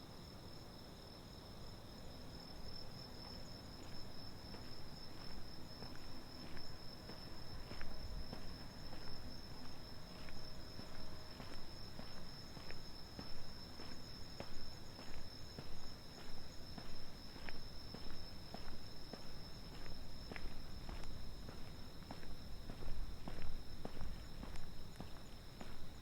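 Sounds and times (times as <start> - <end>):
crickets trilling: 0.1 - 26.0
footsteps on pavement: 2.6 - 26.0.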